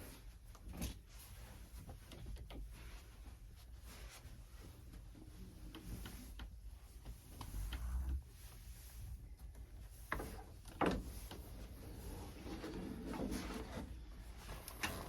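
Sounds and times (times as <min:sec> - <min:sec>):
clothes rustling: 0:00.0 - 0:15.0.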